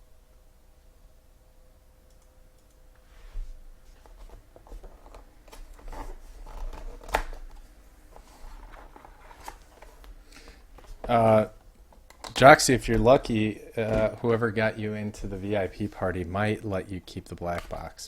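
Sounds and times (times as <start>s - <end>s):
box packaging rustling and clicking: 3.9s - 14.4s.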